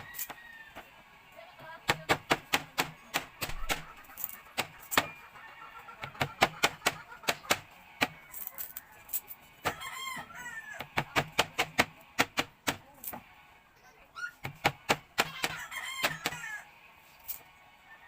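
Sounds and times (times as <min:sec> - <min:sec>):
rooster crowing: 0:00.0 - 0:00.9, 0:08.1 - 0:10.9, 0:15.2 - 0:16.7
sugarcane crunching when chewed: 0:08.2 - 0:09.4.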